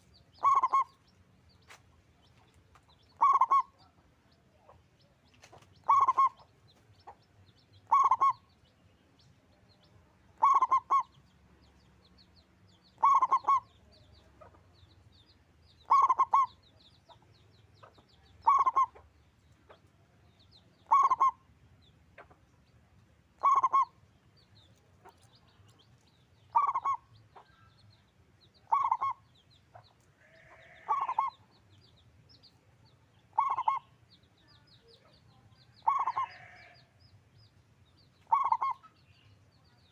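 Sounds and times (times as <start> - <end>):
dove cooing: 0.4 - 0.9, 3.2 - 3.7, 5.8 - 6.4, 7.9 - 8.4, 10.4 - 11.1, 13.0 - 13.7, 15.8 - 16.5, 18.4 - 18.9, 20.9 - 21.4, 23.4 - 23.9, 26.5 - 27.0, 28.7 - 29.2, 30.6 - 31.3, 33.4 - 33.9, 35.8 - 36.6, 38.3 - 38.8.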